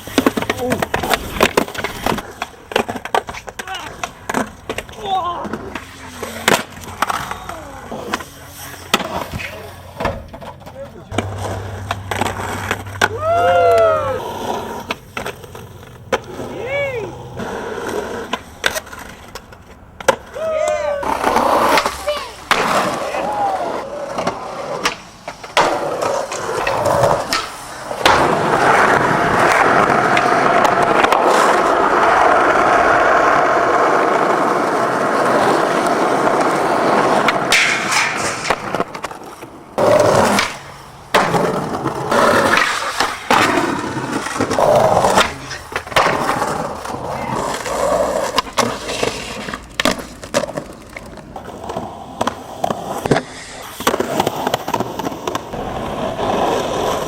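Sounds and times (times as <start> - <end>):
skateboard wheels rolling: 0.0 - 57.0
skateboard pops and landings: 17.9 - 57.0.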